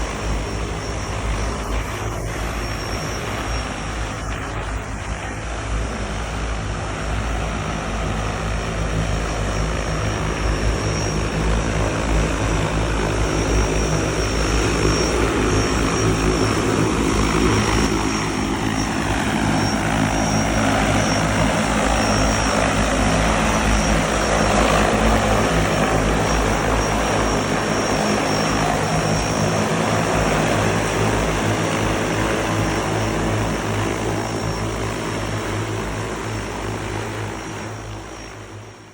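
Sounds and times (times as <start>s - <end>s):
electric propellers whirring: 0.0s - 38.9s.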